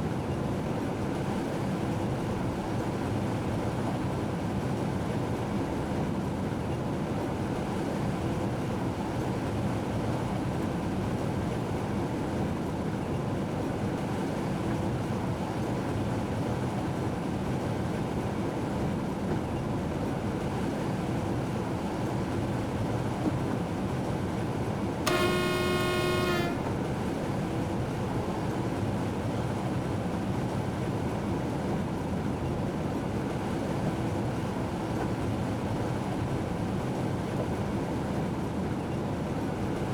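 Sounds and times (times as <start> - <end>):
train horn blast: 25.1 - 26.9.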